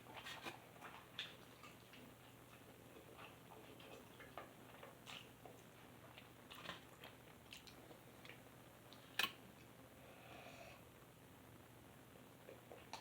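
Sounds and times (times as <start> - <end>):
person chewing food: 0.0 - 9.4.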